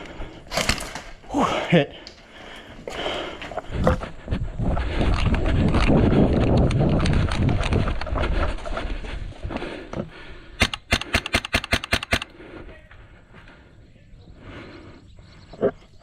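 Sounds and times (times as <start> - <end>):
microphone handling noise: 3.7 - 8.6
airsoft gun shots: 10.6 - 12.3.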